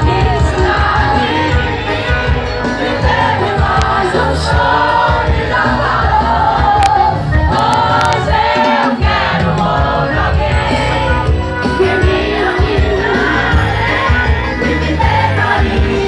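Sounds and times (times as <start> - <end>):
bass and drum beat: 0.0 - 16.0
crowd singing along: 0.0 - 16.0
person singing with band: 0.0 - 16.0.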